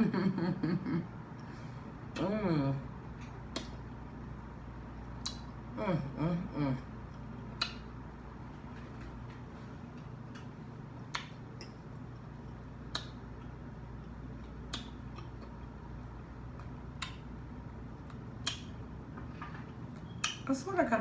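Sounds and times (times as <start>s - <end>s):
low steady hum: 0.0s - 21.0s
wet mouth clicks and smacks: 3.2s - 3.9s, 5.1s - 5.6s, 7.1s - 8.0s, 10.3s - 11.8s, 12.8s - 13.6s, 14.4s - 15.6s, 16.5s - 17.4s, 18.0s - 18.9s, 19.9s - 20.5s
chewing crunchy food: 8.6s - 17.2s.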